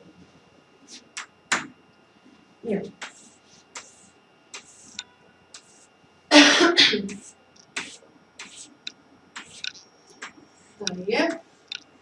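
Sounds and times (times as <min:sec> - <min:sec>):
person clearing throat: 0:06.3 - 0:07.2
faint clicks: 0:11.7 - 0:11.9.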